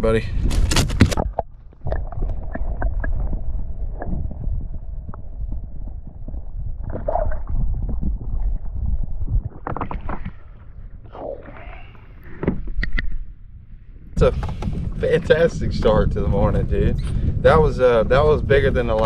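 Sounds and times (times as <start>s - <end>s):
low microphone rumble: 0.0s - 19.0s
knocks and clatter on kayak: 0.4s - 3.0s, 14.2s - 16.3s, 18.8s - 19.0s.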